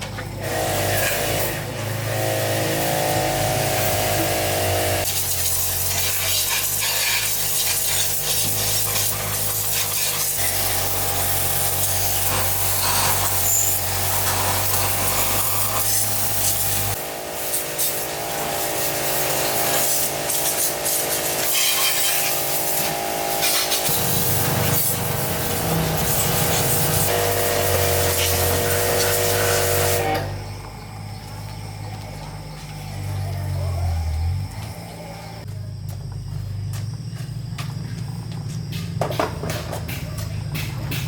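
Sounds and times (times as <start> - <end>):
machine hum: 23.9 - 35.5.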